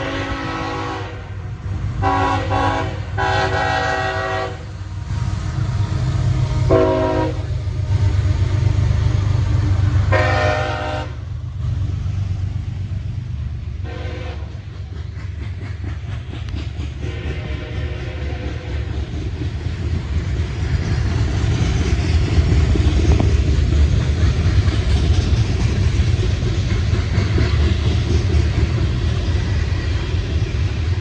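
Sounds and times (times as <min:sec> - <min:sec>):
train horn blasts: 0:00.0 - 0:01.4, 0:02.0 - 0:04.7, 0:06.2 - 0:07.6, 0:10.1 - 0:11.3, 0:13.8 - 0:14.6, 0:17.0 - 0:18.9
diesel engines rumbling: 0:00.0 - 0:31.0.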